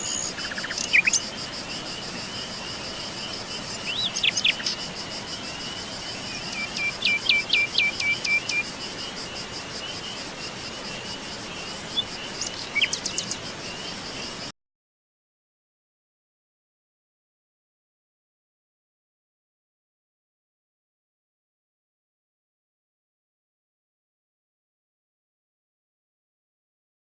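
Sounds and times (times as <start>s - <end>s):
crickets chirring: 0.0s - 14.5s
songbirds calling: 0.0s - 14.5s.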